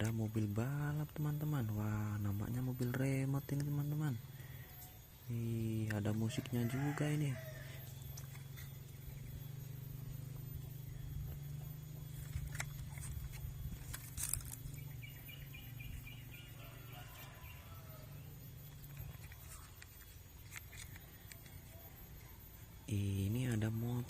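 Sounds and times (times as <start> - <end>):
steady low hum: 0.0 - 24.0
sharp handling clicks: 18.7 - 22.2.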